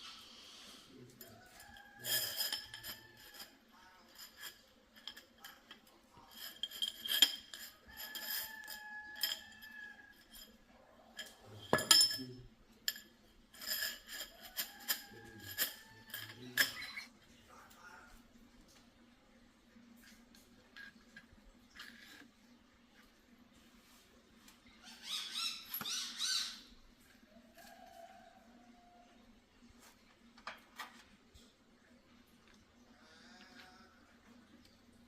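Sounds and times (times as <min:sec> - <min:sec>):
metal tools clinking: 0:01.1 - 0:17.1.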